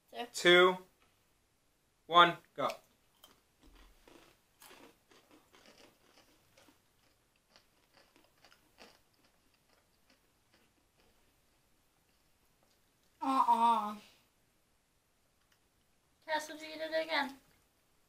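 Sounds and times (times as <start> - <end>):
people crunching snacks: 3.2 - 11.3.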